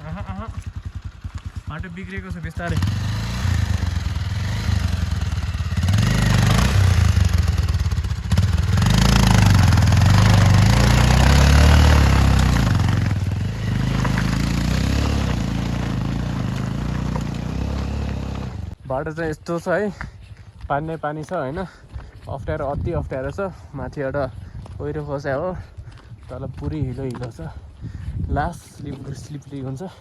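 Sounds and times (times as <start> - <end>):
motorcycle engine revving: 0.0 - 18.8.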